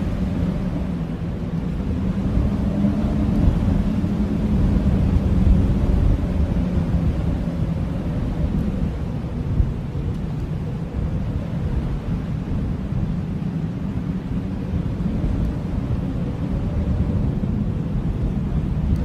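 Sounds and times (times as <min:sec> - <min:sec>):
blizzard wind rumbling: 0:00.0 - 0:19.0.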